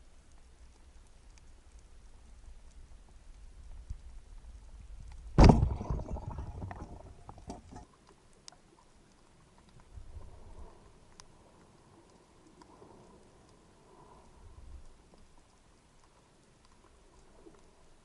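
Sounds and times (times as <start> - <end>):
sea ticks and crackling: 0.0 - 18.0
speargun firing underwater: 5.4 - 7.0.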